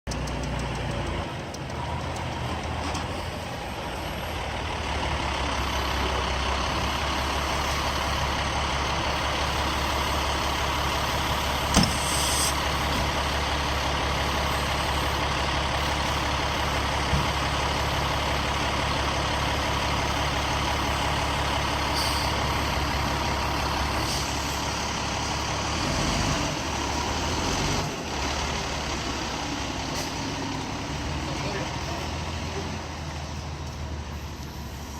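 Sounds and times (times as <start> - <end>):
diesel engine running: 0.1 - 34.9
air brakes hissing: 11.6 - 13.0, 21.8 - 22.5, 23.8 - 24.7.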